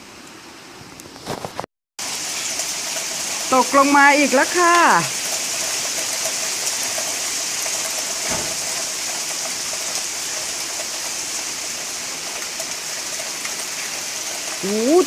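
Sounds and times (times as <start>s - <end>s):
heavy hail and rain: 2.0s - 15.0s
low thump: 8.3s - 8.8s.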